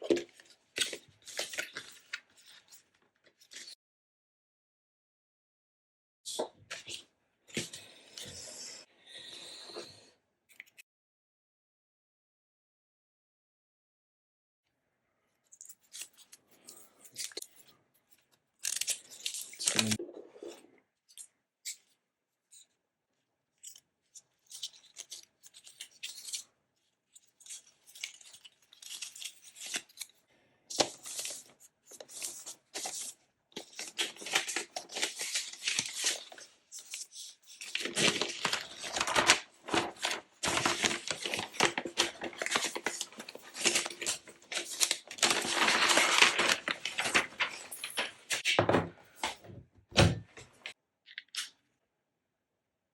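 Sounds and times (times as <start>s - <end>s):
packaging tearing and rustling: 18.6s - 20.0s, 27.4s - 30.0s, 30.8s - 48.4s.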